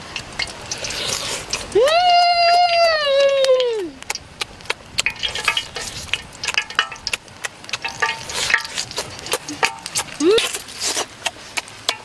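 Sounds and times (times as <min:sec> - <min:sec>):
chewing crisp chicken: 0:00.4 - 0:01.8, 0:04.0 - 0:12.0.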